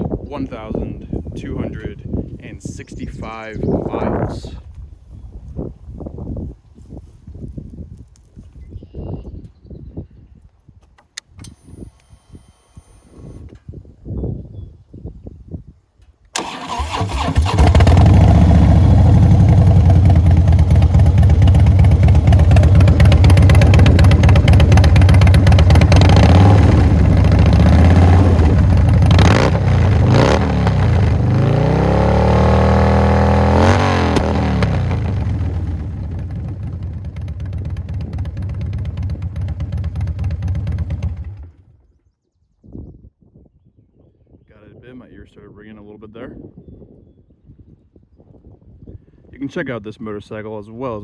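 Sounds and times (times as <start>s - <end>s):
motorcycle engine revving: 16.4s - 41.6s.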